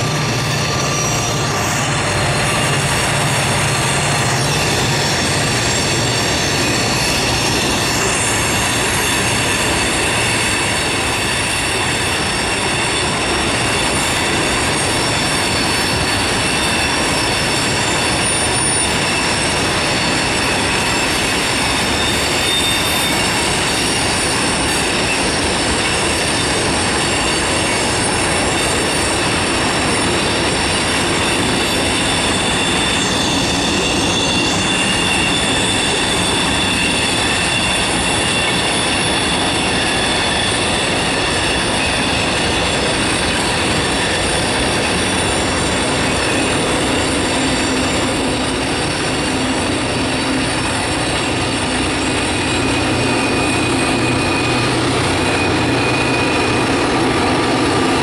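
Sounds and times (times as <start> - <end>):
steel wheels squealing on rails: 0.0 - 58.0
train cars rumbling: 0.0 - 58.0.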